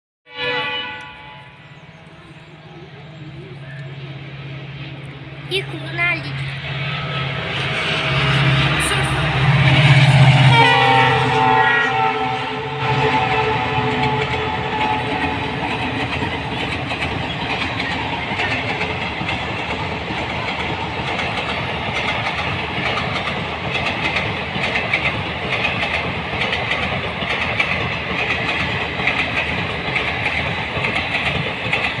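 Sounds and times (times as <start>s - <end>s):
train wheels rumbling on rail: 0.3s - 32.0s
clickety-clack over rail joints: 13.0s - 32.0s.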